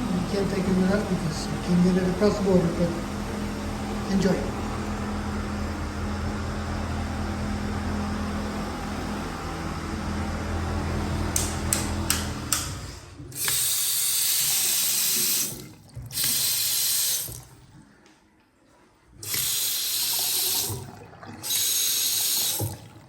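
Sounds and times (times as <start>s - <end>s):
low hum: 0.0s - 13.3s
water running from tap: 13.3s - 17.6s, 19.2s - 23.0s.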